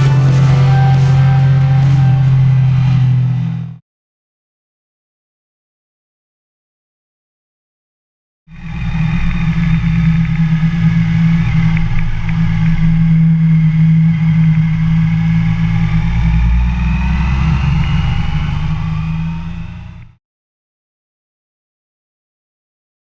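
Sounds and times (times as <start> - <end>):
motorcycle engine running: 0.0 - 3.8, 8.6 - 16.3.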